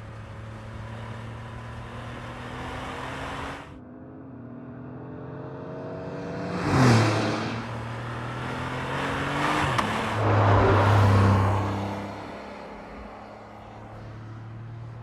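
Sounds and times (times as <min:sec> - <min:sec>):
car engine accelerating hard: 0:00.0 - 0:03.8, 0:04.5 - 0:14.6.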